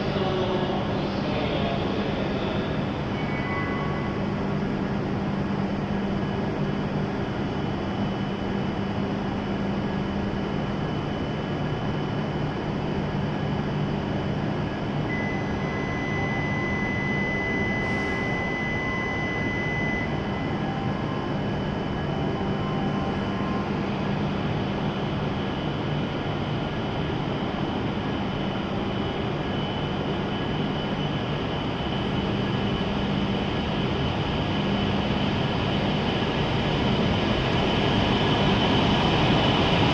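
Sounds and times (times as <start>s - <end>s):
train hum and hiss: 0.0s - 39.9s
high steady beep: 15.1s - 23.7s.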